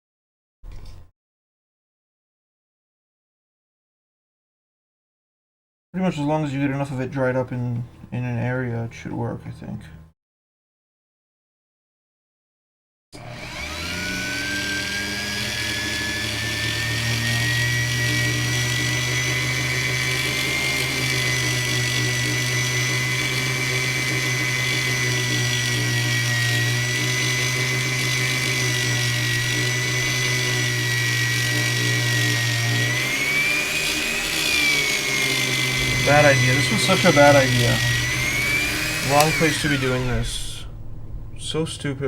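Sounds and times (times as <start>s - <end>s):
electric polishing tool whining: 13.2s - 40.7s.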